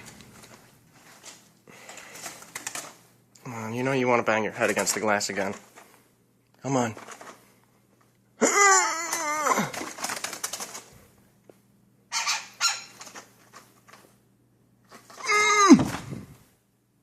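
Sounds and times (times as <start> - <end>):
bird wings flapping: 2.0 - 3.0, 9.6 - 11.0
bird wavering cry: 12.1 - 13.0.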